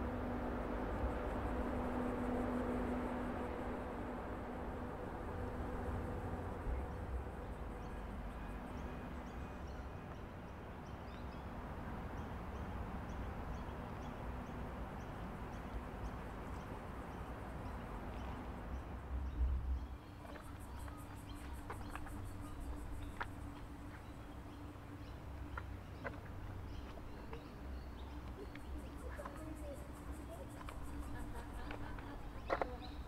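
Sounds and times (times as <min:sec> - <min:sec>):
steady low rumble: 0:00.0 - 0:10.1
small birds chirping: 0:06.7 - 0:33.0.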